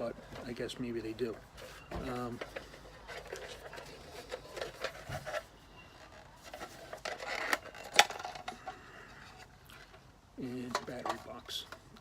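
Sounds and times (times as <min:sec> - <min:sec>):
paper and plastic rustling: 0:00.3 - 0:12.0.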